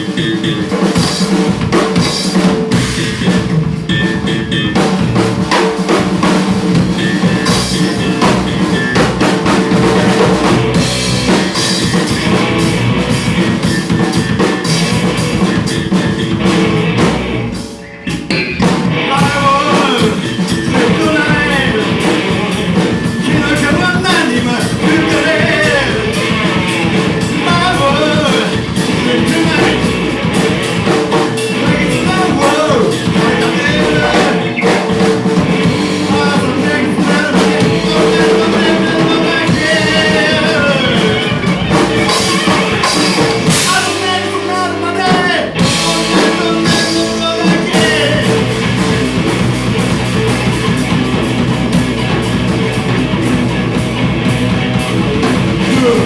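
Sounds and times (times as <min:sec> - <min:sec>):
drums: 0:00.0 - 0:56.0
electric guitar: 0:00.0 - 0:56.0
person singing: 0:17.7 - 0:49.0, 0:55.3 - 0:56.0.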